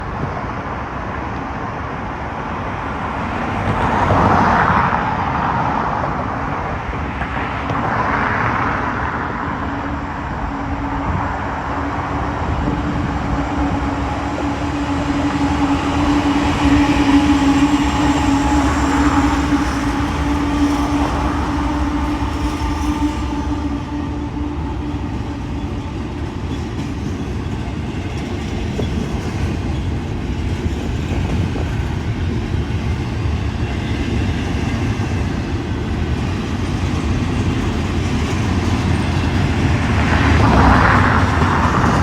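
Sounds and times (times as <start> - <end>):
freight train rumbling and rattling: 0.0 - 42.0.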